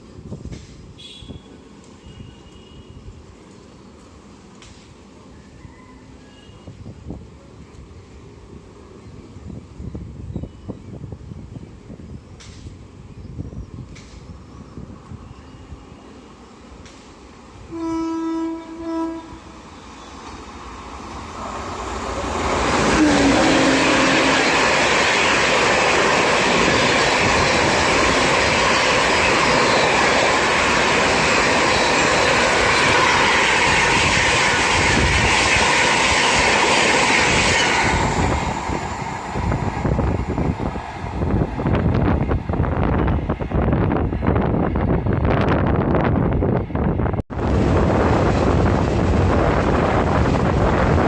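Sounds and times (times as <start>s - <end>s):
train wheels rushing on rails: 0.0s - 51.0s
train horn blasts: 1.0s - 3.1s, 17.7s - 19.6s, 22.8s - 24.7s.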